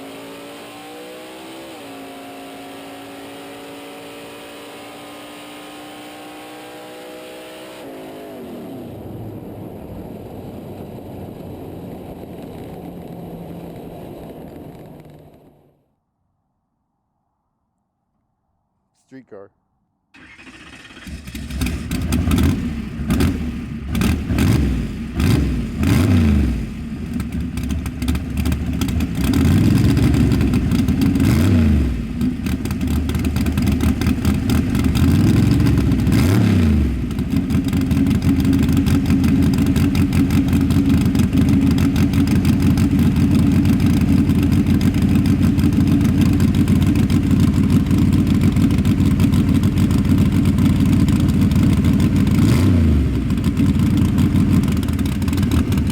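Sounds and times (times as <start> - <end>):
car engine revving: 0.0 - 15.8, 20.2 - 55.9
car engine fast idle: 20.2 - 22.1.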